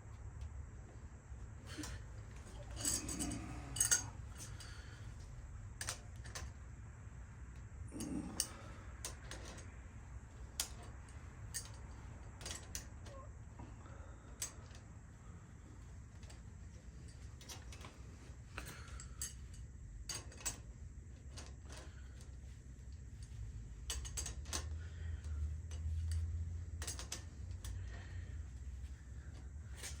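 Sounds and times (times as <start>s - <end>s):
low hum: 0.0s - 30.0s
metallic clicks of tools: 1.7s - 6.5s, 8.0s - 9.7s, 23.8s - 24.8s, 25.7s - 28.0s.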